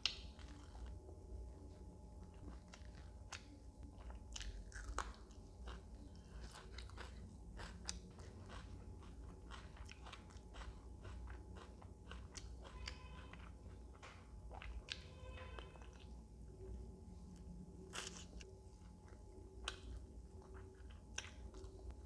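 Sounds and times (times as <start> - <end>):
person chewing and biting: 0.0 - 1.0, 2.3 - 13.5, 17.4 - 22.0.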